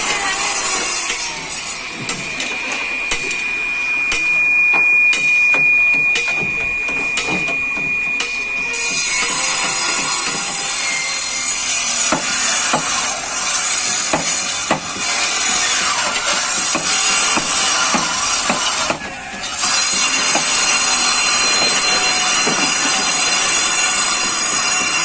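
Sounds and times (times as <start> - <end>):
hammer blows: 0.1 - 25.0
rasping power tool: 8.2 - 25.0.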